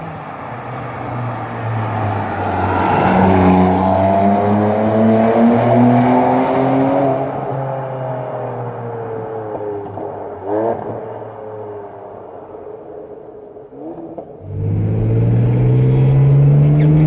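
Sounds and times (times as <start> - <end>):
sports car engine revving: 13.7 - 17.0.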